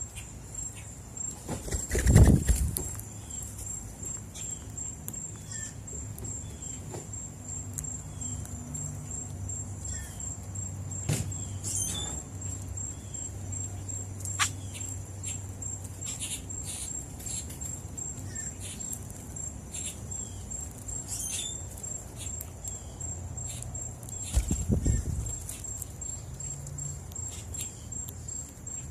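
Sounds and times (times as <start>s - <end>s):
high-pitched insect trill: 0.0s - 28.9s
faint bird chirps: 11.0s - 15.4s.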